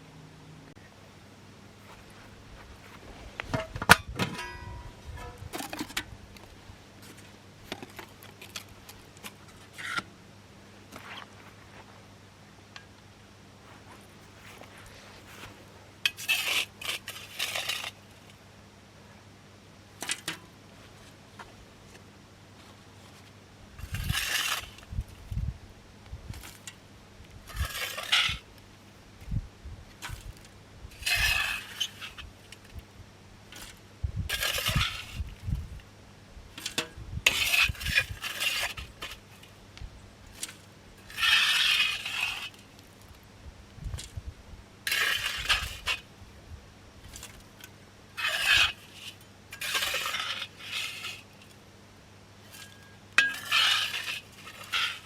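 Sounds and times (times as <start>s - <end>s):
metal cookware clinking and scraping: 4.3s - 5.4s, 52.6s - 54.1s.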